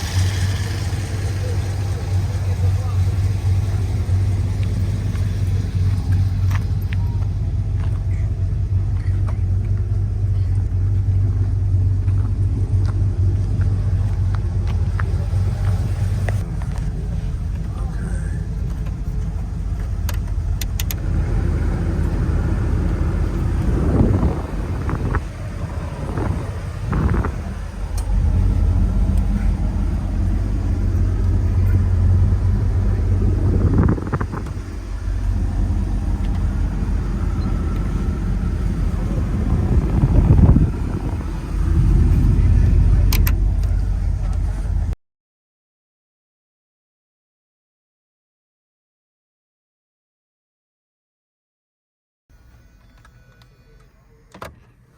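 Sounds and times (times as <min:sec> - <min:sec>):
truck engine running: 0:00.0 - 0:45.0.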